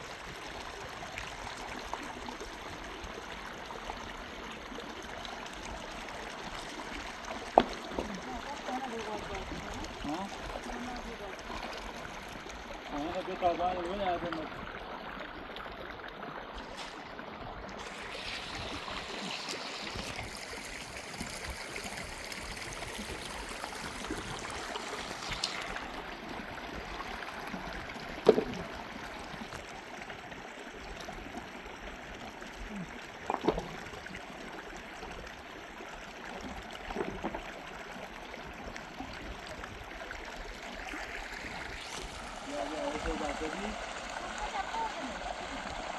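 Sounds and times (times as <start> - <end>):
running water flowing: 0.0 - 45.9.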